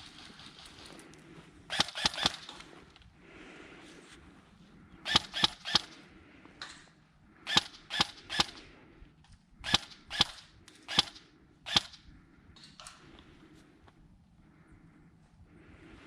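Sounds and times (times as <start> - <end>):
airsoft gun shots: 1.7 - 2.5, 5.1 - 6.0.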